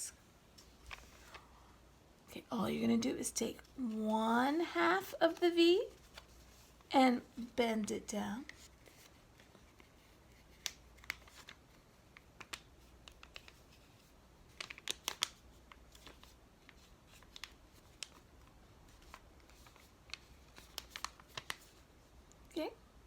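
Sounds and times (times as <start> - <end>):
paper rustling and crinkling: 0.6 - 1.6, 5.2 - 6.9, 8.4 - 22.2.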